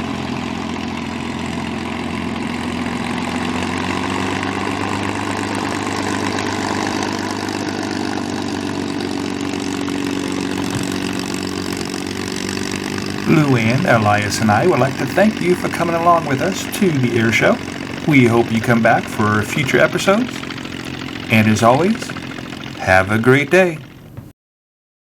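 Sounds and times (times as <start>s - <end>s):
propeller aircraft engine: 0.0s - 24.3s.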